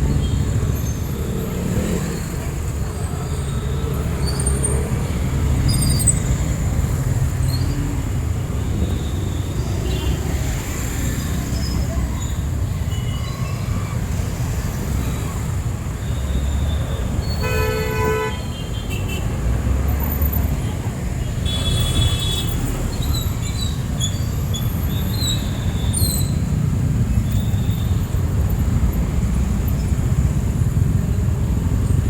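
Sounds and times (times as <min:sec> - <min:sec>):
street traffic rumble: 0:00.0 - 0:32.0
vehicle horn honking: 0:17.4 - 0:19.2.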